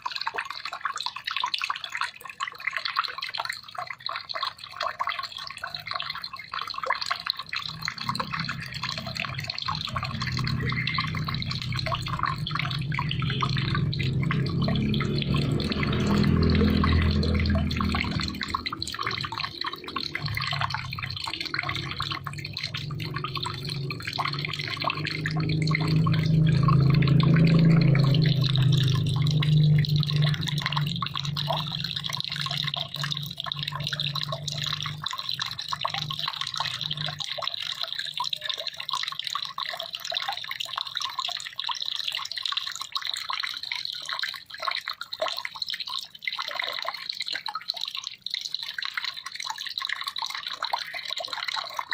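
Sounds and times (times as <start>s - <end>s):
water trickling and dripping: 0.0s - 51.9s
low rumble: 7.7s - 37.3s.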